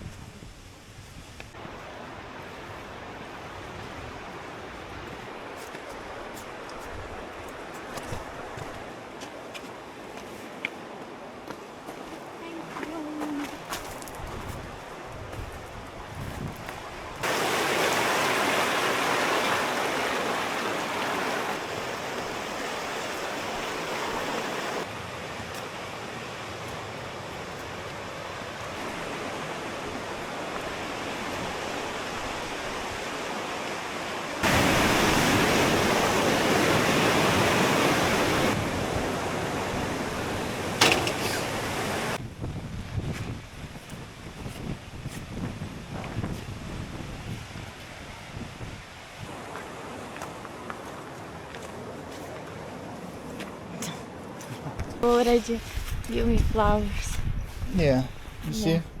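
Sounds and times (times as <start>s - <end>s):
waterfall rushing and splashing: 17.2s - 42.2s.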